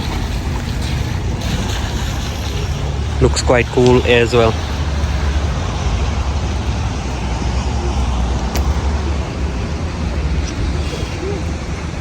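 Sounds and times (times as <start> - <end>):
hiss: 0.0 - 3.1
road vehicles rumbling: 0.0 - 12.0.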